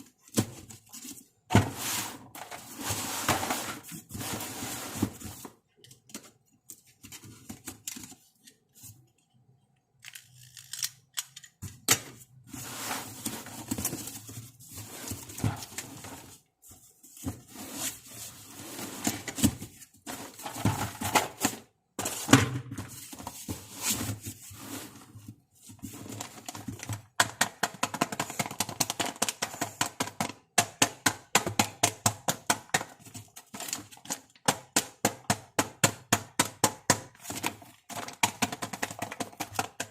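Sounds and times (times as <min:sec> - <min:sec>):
small plastic pieces knocking: 0:33.5 - 0:39.9.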